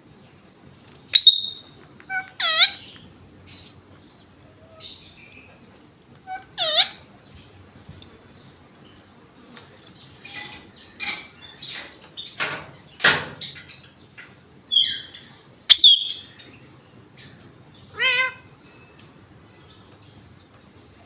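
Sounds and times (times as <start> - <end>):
parrot chattering calls: 1.1 - 3.0, 6.2 - 7.1, 17.9 - 18.5
parrot warbled call: 1.1 - 3.0, 6.2 - 7.1, 17.9 - 18.5
parrot squawk: 1.2 - 3.0, 6.2 - 7.1, 17.9 - 18.4.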